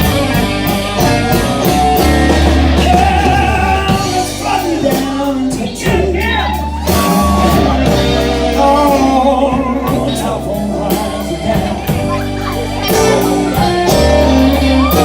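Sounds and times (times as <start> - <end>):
live blues band playing: 0.0 - 15.0
person singing sliding vocal: 0.7 - 15.0.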